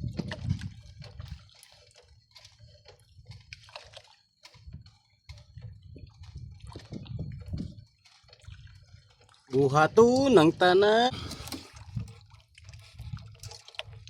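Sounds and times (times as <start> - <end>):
water sloshing and dripping: 0.0 - 14.0
small clicks and crackles: 12.8 - 14.0.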